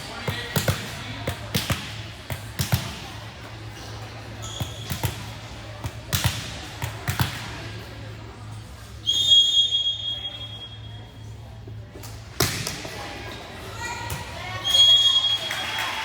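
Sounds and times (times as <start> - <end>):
referee's whistle blast: 9.1 - 10.7.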